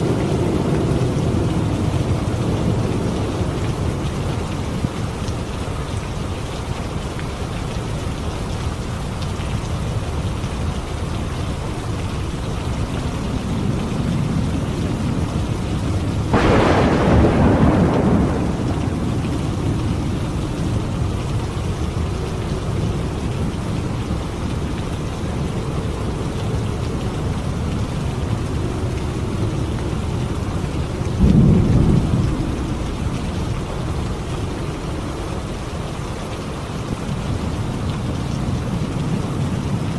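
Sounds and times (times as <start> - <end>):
thunder rumbling: 0.0 - 5.3, 12.9 - 34.9
steady rain: 0.0 - 39.9.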